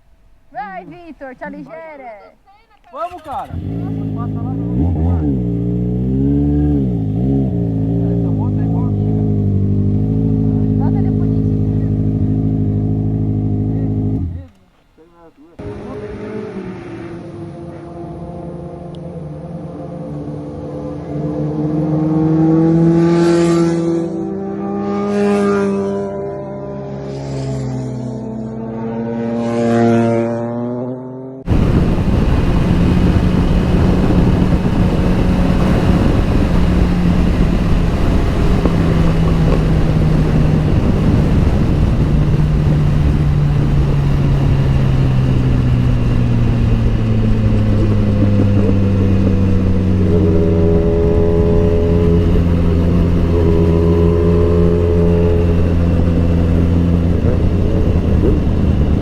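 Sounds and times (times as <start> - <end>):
motorcycle engine shifting gears: 2.5 - 59.0
heavy wind noise: 31.4 - 59.0.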